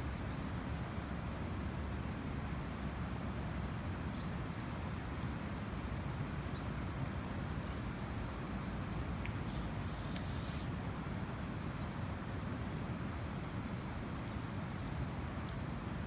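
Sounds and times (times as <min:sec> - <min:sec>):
insect trilling: 0:09.8 - 0:10.7.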